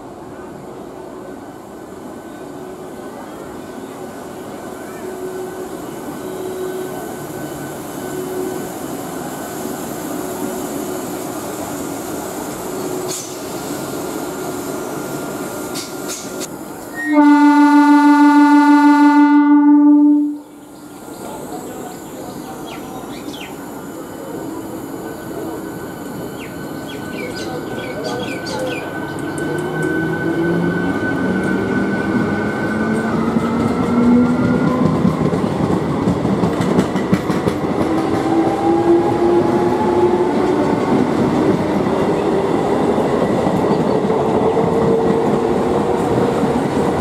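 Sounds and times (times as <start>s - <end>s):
loud train horn blast: 16.9s - 20.4s.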